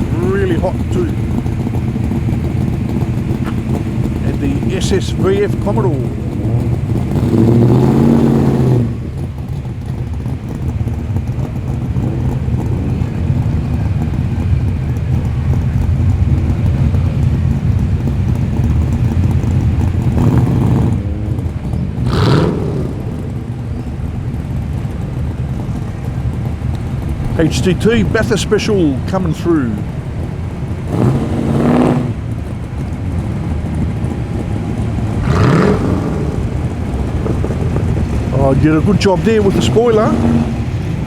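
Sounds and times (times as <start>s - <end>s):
muscle car engines rumbling: 0.0s - 41.0s
engine rev blip: 20.1s - 23.9s, 30.9s - 32.3s.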